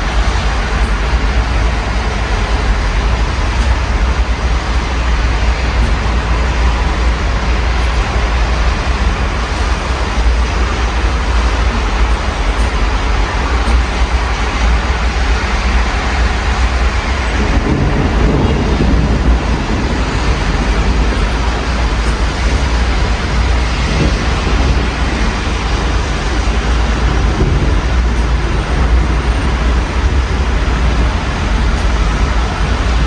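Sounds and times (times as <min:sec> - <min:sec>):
rain falling: 0:00.0 - 0:33.0
road traffic rumble: 0:00.0 - 0:33.0.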